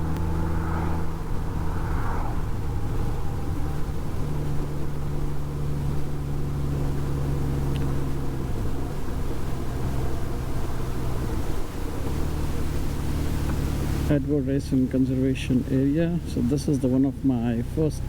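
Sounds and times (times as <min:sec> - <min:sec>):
motorcycle engine humming: 0:00.0 - 0:18.0
road and wind noise: 0:00.0 - 0:18.0.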